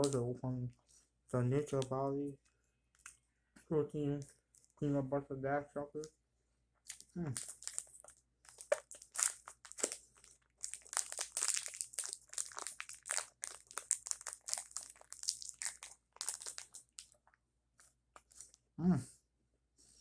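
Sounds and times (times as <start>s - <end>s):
wrapper crinkling: 6.9s - 17.4s.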